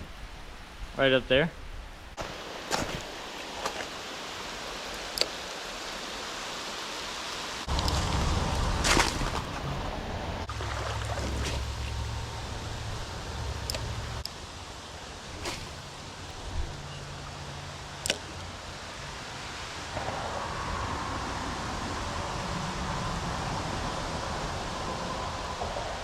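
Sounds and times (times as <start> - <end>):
light rain hiss: 0.0 - 26.0
creek water running: 2.2 - 20.0.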